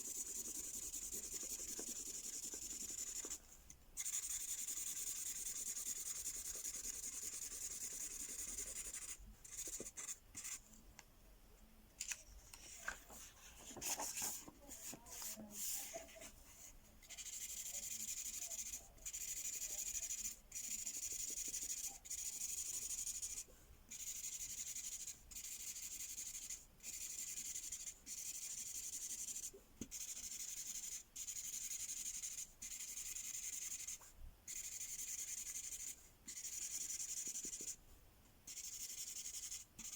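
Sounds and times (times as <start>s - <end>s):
marker scribbling on paper: 0.0s - 3.4s, 4.0s - 10.6s, 12.6s - 37.8s, 38.5s - 39.9s
soft handling sounds: 10.7s - 17.0s.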